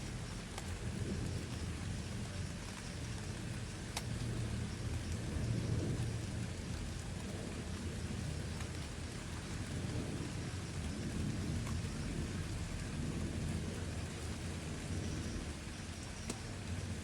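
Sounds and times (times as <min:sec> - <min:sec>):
low continuous rumble: 0:00.0 - 0:17.0
steady rain falling: 0:00.0 - 0:17.0.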